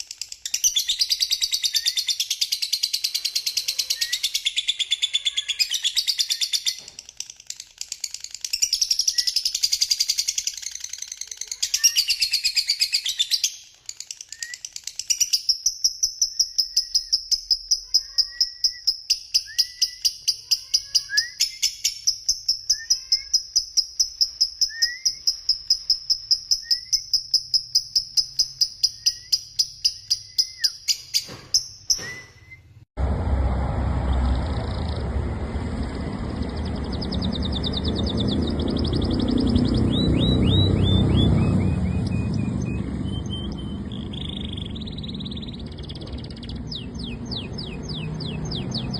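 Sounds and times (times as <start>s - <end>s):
songbirds singing: 0.0s - 32.8s, 34.0s - 48.9s
loud rushing noise: 33.0s - 44.0s.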